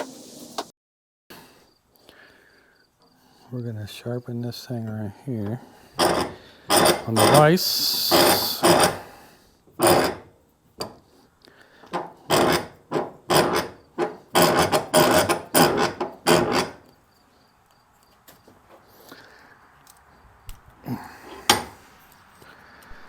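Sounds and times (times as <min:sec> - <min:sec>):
file rasping on metal blade: 0:06.0 - 0:07.5, 0:08.1 - 0:09.1, 0:09.8 - 0:10.3, 0:12.2 - 0:16.8.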